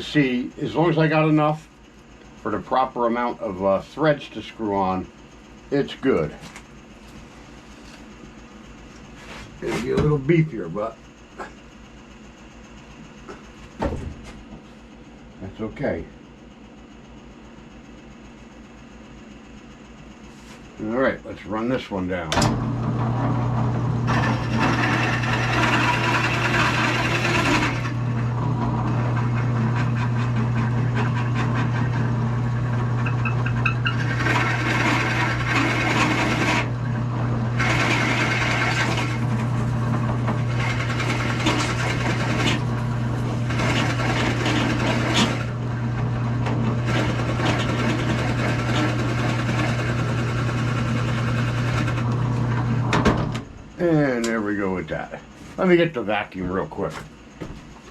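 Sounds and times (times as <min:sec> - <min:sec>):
power drill motor hum: 0:22.4 - 0:53.3
drill bit cutting wood: 0:24.0 - 0:52.2.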